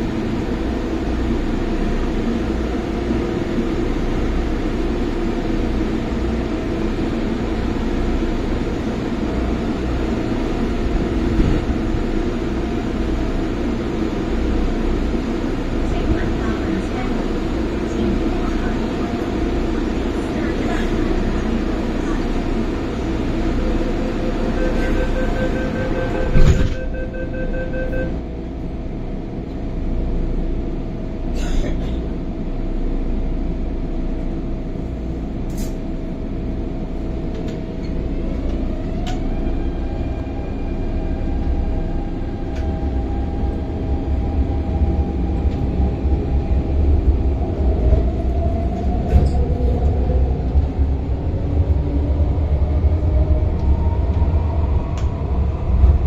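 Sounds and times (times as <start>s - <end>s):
train rumbling: 0.0s - 56.0s
warning beeping: 24.3s - 28.2s
train doors slamming shut: 25.6s - 27.1s.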